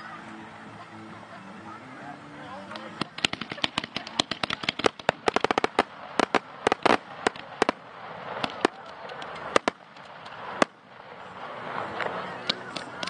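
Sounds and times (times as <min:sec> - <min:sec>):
fireworks exploding: 0:02.7 - 0:13.0.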